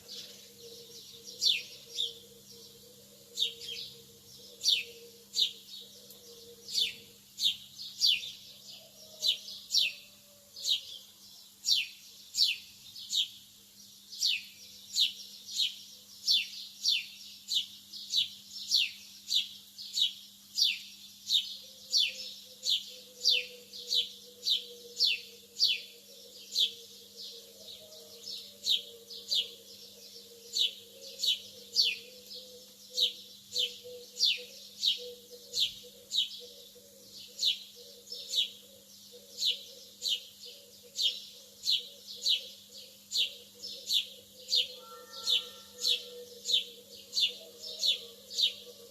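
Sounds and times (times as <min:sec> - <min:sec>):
bird chirping high and falling: 0:44.6 - 0:46.1.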